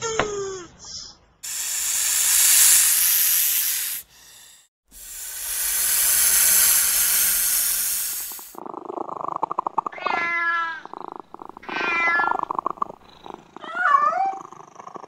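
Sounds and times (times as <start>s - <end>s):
snake hissing: 1.4s - 8.6s.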